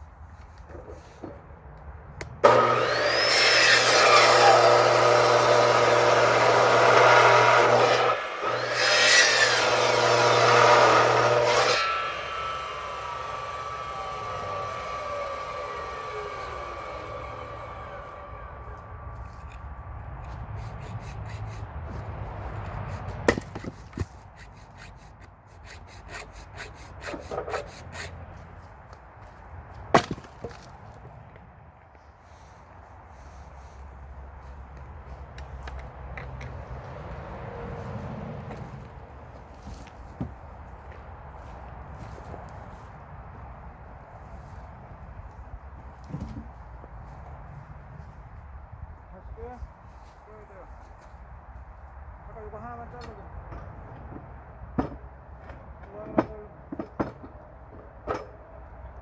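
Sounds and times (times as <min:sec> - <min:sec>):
electric saw cutting wood: 0:02.4 - 0:19.6
low motor hum: 0:10.0 - 0:20.7.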